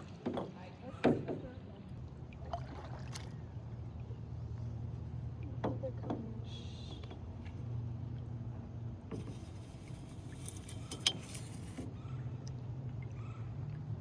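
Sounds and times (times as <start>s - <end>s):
kayak paddling on water: 2.0s - 3.9s.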